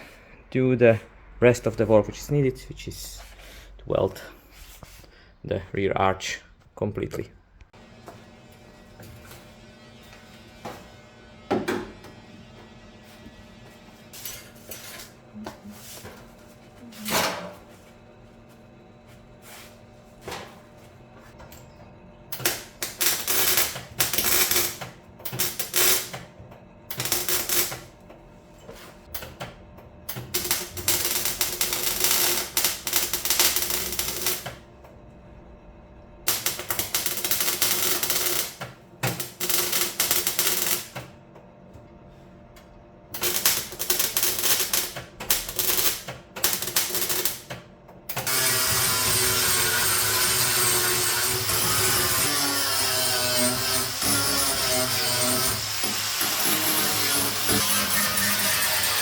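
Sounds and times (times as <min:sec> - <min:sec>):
welding arc crackling: 0:22.3 - 0:26.2, 0:26.9 - 0:27.9, 0:30.1 - 0:34.6, 0:36.3 - 0:41.0, 0:43.2 - 0:47.5, 0:48.1 - 0:59.0.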